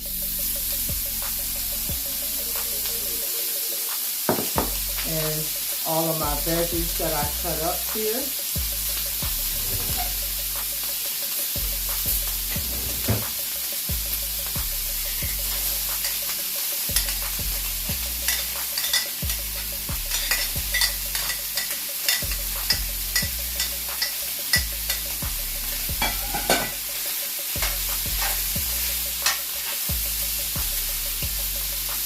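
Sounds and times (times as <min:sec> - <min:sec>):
food sizzling in hot oil: 0:00.0 - 0:32.0
utensil scraping a pan: 0:09.6 - 0:10.2, 0:12.5 - 0:13.4, 0:27.6 - 0:29.9.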